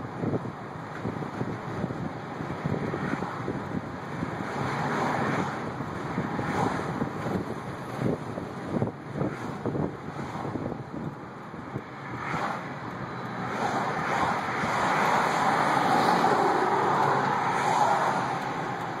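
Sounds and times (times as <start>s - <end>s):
truck engine rushing: 0.0s - 19.0s.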